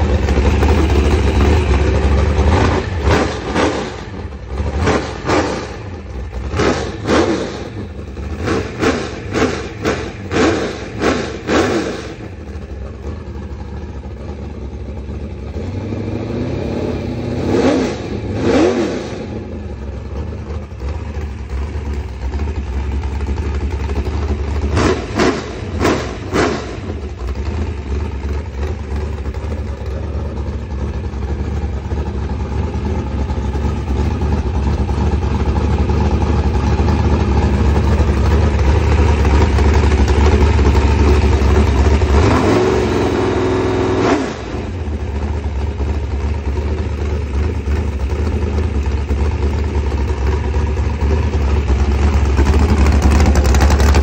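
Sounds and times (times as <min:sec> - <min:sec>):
engine idling and revving: 0:00.0 - 0:54.0.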